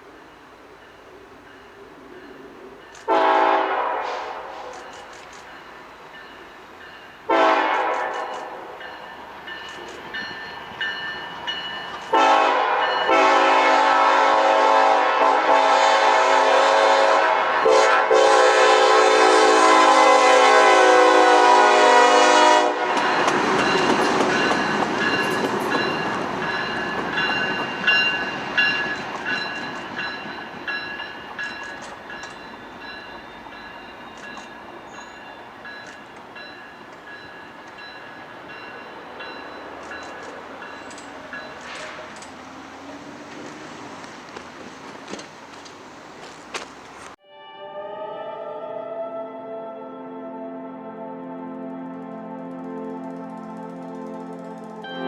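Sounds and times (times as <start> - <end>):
train passing rumble and clatter: 0.0 - 47.2, 51.7 - 55.0
locomotive air horn: 3.1 - 5.0, 7.3 - 8.8, 12.1 - 23.4.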